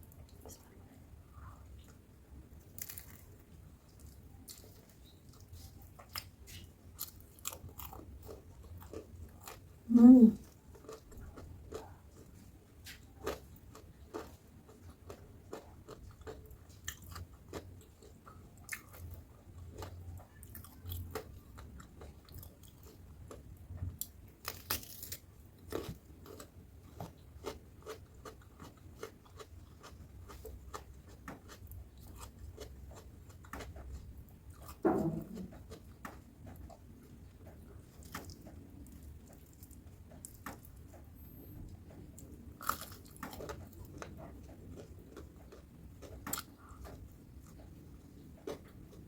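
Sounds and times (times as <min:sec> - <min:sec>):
crunchy food chewing: 0:02.6 - 0:41.2, 0:41.9 - 0:49.0
person humming hmm: 0:09.9 - 0:10.4.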